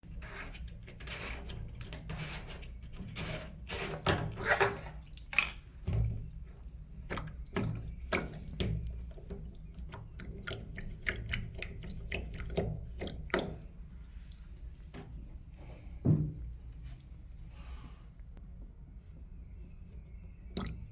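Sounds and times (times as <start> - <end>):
water running and dripping: 4.0 - 15.5, 16.3 - 17.4, 20.5 - 20.9.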